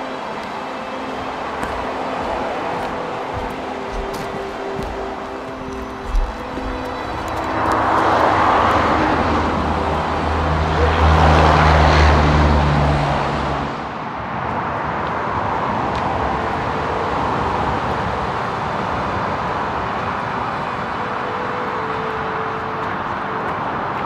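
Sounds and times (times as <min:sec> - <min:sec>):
rushing noise: 0:00.0 - 0:24.0
vehicle engine hum: 0:00.0 - 0:24.0.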